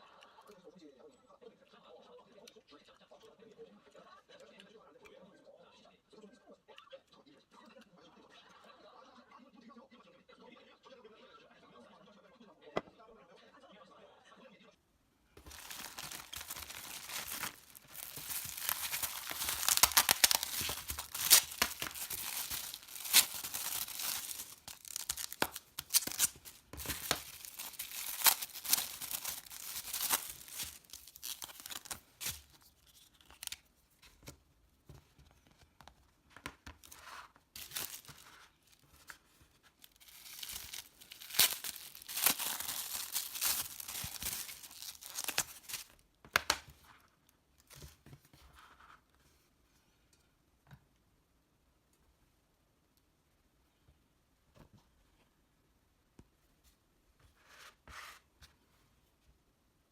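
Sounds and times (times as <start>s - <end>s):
packaging tearing and crinkling: 15.4s - 33.7s, 36.8s - 39.1s, 39.8s - 46.7s.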